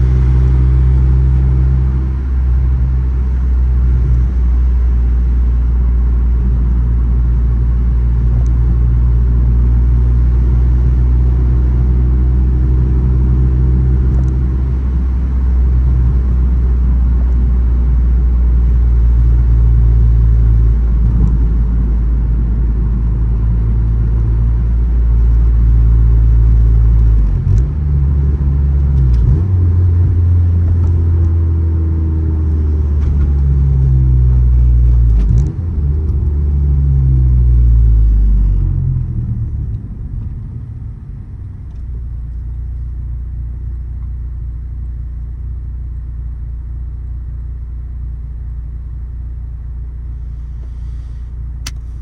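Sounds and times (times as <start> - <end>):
car engine drone: 0.0 - 52.0.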